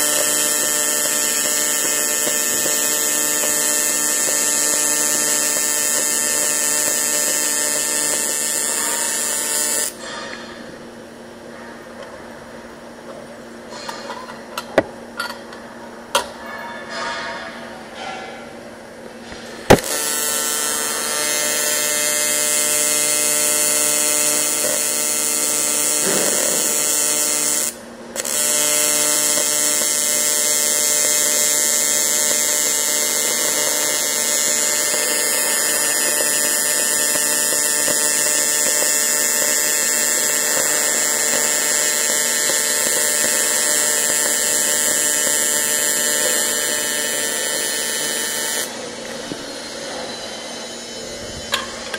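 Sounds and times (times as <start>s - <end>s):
welding arc crack: 0.0s - 10.0s, 19.6s - 48.8s
welding arc electric buzz: 0.0s - 10.7s, 19.2s - 51.9s.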